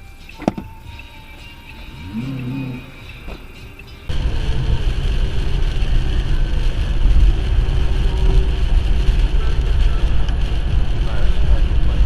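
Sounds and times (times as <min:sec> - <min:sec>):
vehicle rumble with road noise: 0:00.0 - 0:12.0
wind noise: 0:04.1 - 0:12.0.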